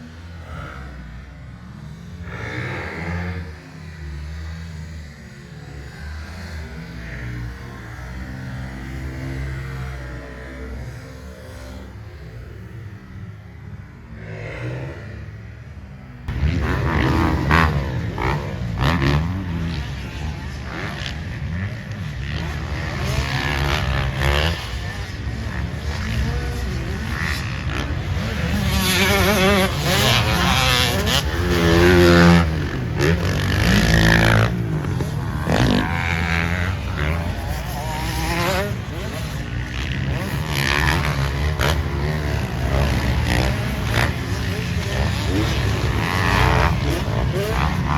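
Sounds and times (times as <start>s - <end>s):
dirt bike engines revving: 0.0s - 47.9s.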